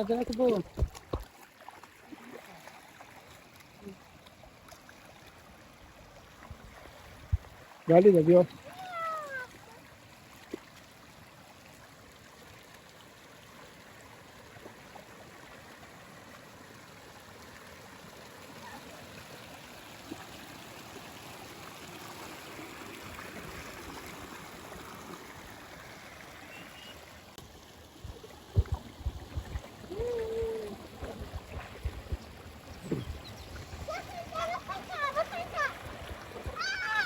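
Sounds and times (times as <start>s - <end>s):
waterfall and stream rushing: 13.7s - 27.4s, 30.6s - 37.0s.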